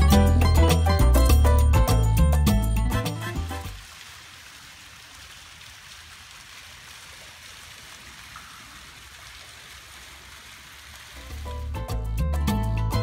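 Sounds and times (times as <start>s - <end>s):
fountain splashing: 2.8s - 13.0s.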